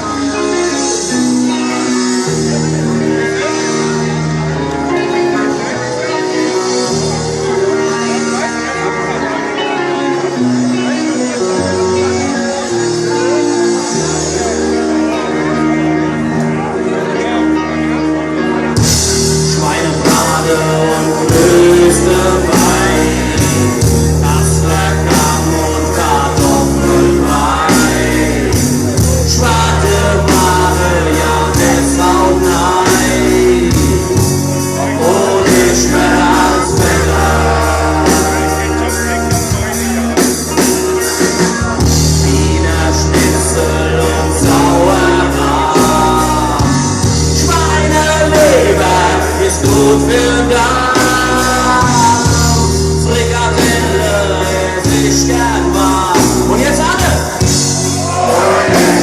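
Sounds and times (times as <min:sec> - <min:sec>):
bass: 0:00.0 - 0:59.0
guitar: 0:00.0 - 0:59.0
singer vocals: 0:00.0 - 0:59.0
steady drum beat: 0:18.8 - 0:59.0.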